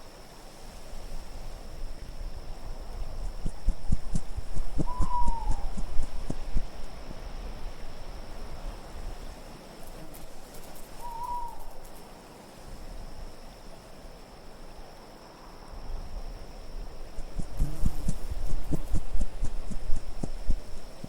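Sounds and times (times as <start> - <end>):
low wind: 0.0 - 21.0
hooting call: 4.8 - 5.9, 11.0 - 11.8.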